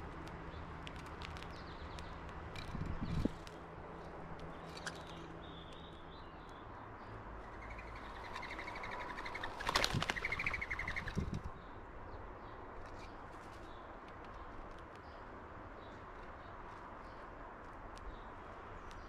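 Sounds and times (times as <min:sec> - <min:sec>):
wings flapping: 0:08.3 - 0:11.4.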